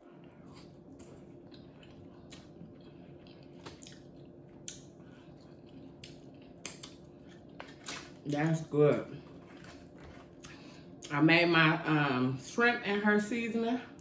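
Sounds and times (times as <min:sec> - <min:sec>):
person chewing shellfish: 0:00.0 - 0:08.2
wet mouth clicks and smacks: 0:06.0 - 0:07.0.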